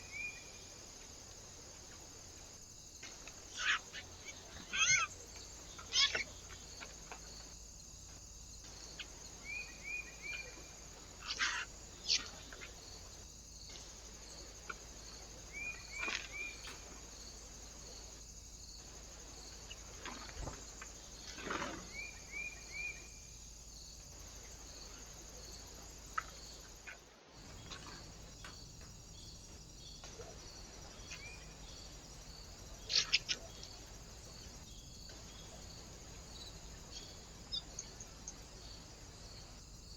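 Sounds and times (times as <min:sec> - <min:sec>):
faint steady hiss: 0:00.0 - 0:39.9
small birds calling: 0:03.2 - 0:07.5, 0:08.1 - 0:18.2, 0:24.1 - 0:39.6.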